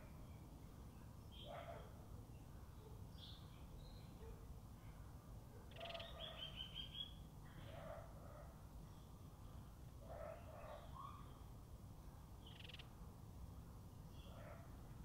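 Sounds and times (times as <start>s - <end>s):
birds calling: 5.7s - 7.2s, 12.4s - 12.9s.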